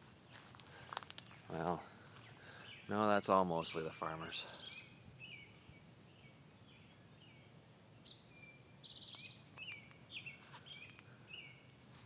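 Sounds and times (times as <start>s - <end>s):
songbirds chirping: 0.0s - 12.0s
faint clicks: 0.6s - 1.3s.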